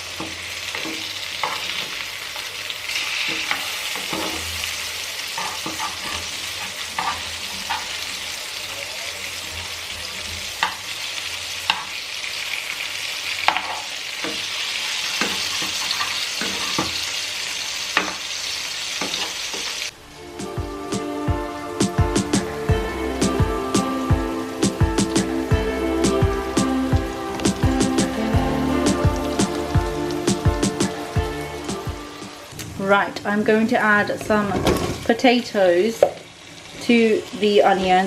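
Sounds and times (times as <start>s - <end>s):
food sizzling in hot oil: 0.0s - 38.0s
utensil scraping a pan: 5.4s - 8.0s
music: 20.0s - 32.6s.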